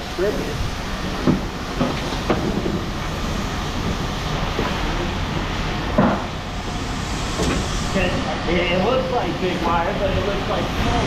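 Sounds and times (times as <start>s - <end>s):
heavy machinery rumbling: 0.0s - 11.0s
metal knocks and clank: 5.9s - 6.3s.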